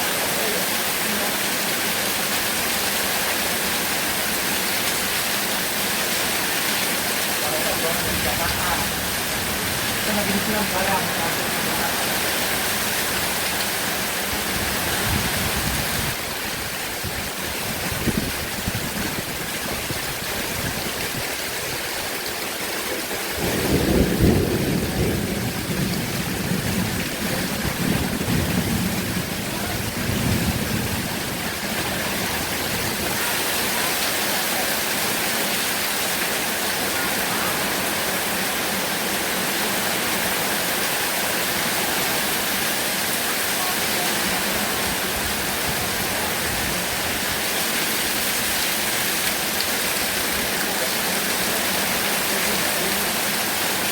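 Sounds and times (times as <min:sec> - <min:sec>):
heavy rain falling: 0:00.0 - 0:53.9
thunder rumbling: 0:23.3 - 0:33.2.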